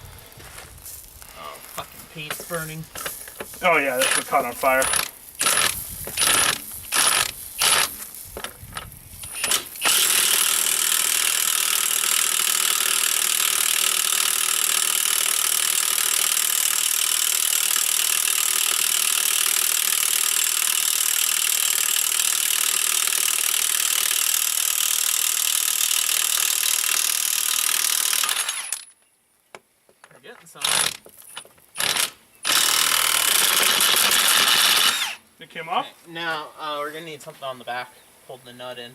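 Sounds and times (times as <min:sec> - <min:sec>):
impact wrench hammering: 0:02.4 - 0:08.6, 0:09.2 - 0:20.9.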